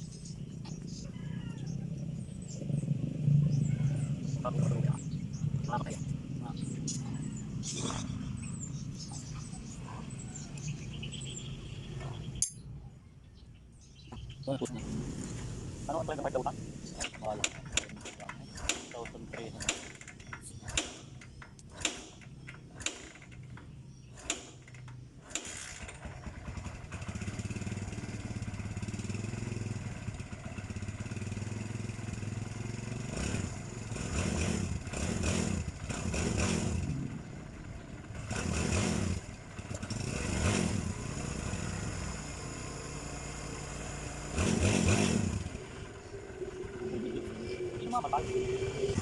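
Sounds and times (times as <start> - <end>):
motorcycle engine revving: 0.0 - 12.4, 14.6 - 49.0
motorcycle engine idling: 15.9 - 34.1, 34.7 - 40.2, 40.8 - 44.4, 45.2 - 49.0
sharp clicks: 17.0 - 25.5.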